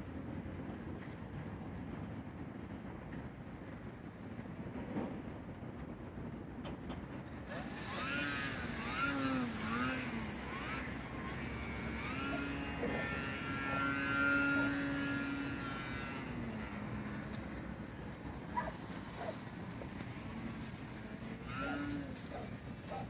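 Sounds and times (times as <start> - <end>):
model plane motor running: 7.4 - 23.0.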